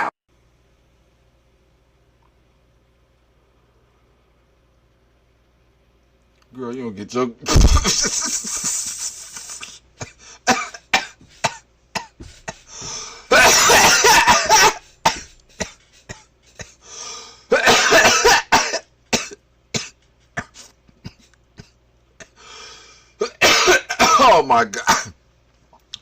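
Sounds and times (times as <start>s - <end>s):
person coughing: 7.5s - 16.8s, 17.5s - 22.4s, 23.2s - 25.2s
person gasping: 9.3s - 10.5s, 12.2s - 13.4s, 16.6s - 17.5s, 22.2s - 23.2s.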